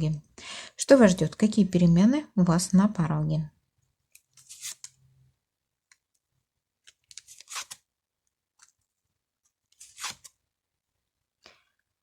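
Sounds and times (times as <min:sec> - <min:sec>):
cards swishing and rustling: 0:04.2 - 0:05.0, 0:06.9 - 0:07.8, 0:09.7 - 0:10.4.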